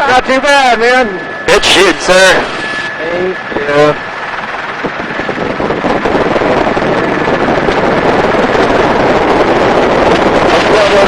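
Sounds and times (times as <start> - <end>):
helicopter rotor and engine: 0.0 - 11.0
wind buffeting microphone: 0.0 - 11.0.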